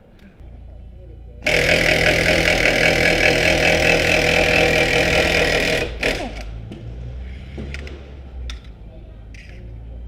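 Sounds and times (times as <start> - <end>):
impact wrench running: 1.4 - 6.7.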